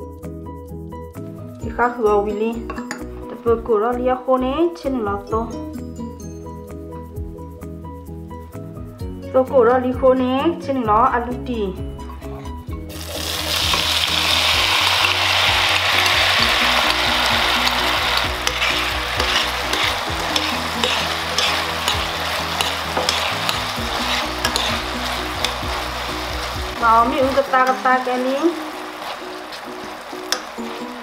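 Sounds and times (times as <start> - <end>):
potatoes sizzling in oil: 12.9 - 31.0
utensil clicking against pan: 18.2 - 24.8.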